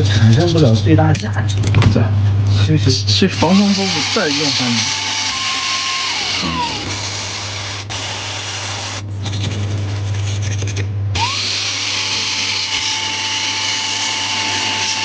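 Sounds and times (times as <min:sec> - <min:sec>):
handheld power tool whirring: 0:03.3 - 0:09.0, 0:11.2 - 0:15.0.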